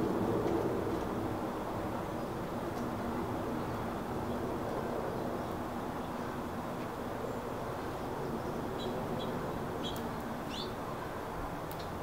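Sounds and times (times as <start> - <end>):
small songbirds chirping: 7.2 - 12.0.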